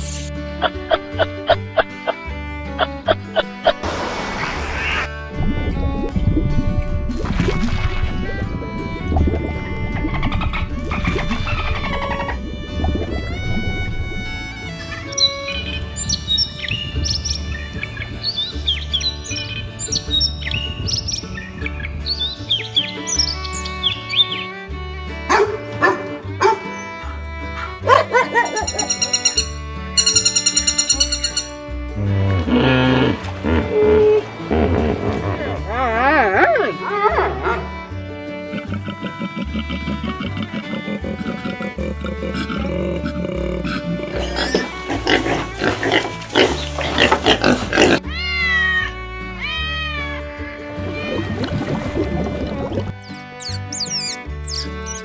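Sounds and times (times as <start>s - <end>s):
background music: 0.0s - 55.0s
animal pitched calls: 10.1s - 12.5s, 25.3s - 31.6s, 38.4s - 50.0s
dog barking: 25.3s - 26.7s, 27.6s - 29.0s, 36.8s - 37.7s
dog yipping: 25.3s - 29.4s, 36.5s - 37.7s
bird chirps: 28.6s - 31.6s, 53.0s - 55.0s
animal grunting: 32.0s - 37.7s, 38.4s - 48.1s.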